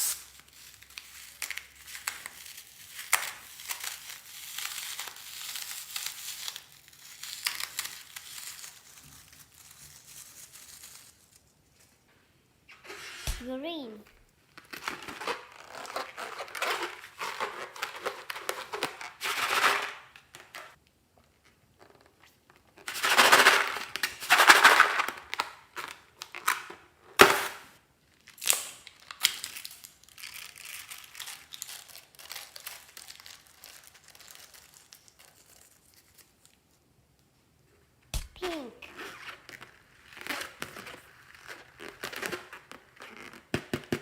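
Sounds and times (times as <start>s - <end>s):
crinkling and rustling handling: 0.3s - 27.4s, 28.0s - 44.0s
sharp snap: 13.2s - 13.5s, 38.1s - 38.5s.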